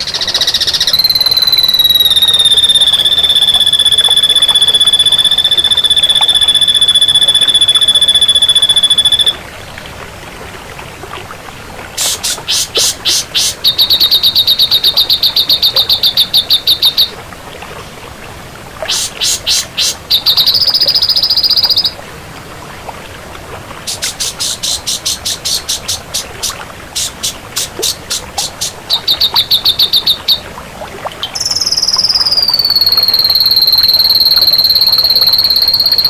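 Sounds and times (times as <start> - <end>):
bird long high whistle: 0.0 - 9.4, 12.0 - 17.2, 18.9 - 22.0, 23.9 - 30.4, 31.4 - 36.0
bird rapid sharp notes: 12.0 - 17.1, 18.9 - 21.9, 23.9 - 30.4.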